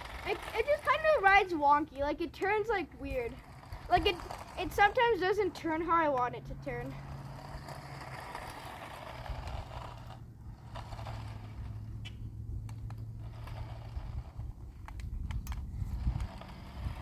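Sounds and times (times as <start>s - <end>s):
plastic wheels scraping pavement: 0.0s - 17.0s
toy car motor whirring: 0.0s - 17.0s.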